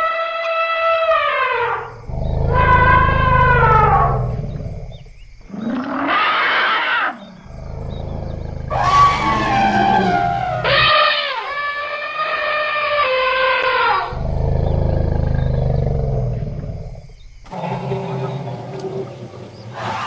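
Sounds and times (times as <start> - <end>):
deep rumble: 2.0 - 5.2, 7.5 - 11.6
elephants trumpeting: 8.7 - 11.6.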